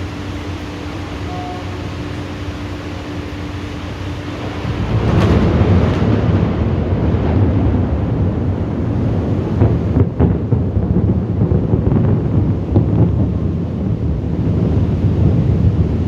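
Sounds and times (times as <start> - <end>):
heavy thunderstorm: 0.0 - 16.0
thunder rumbling: 0.0 - 16.0
sharp thunder cracks: 4.4 - 16.0.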